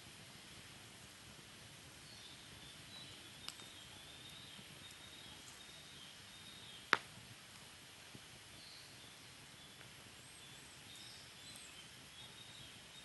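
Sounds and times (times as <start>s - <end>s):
fire popping: 0.0s - 10.3s
wood fire burning: 0.0s - 13.0s.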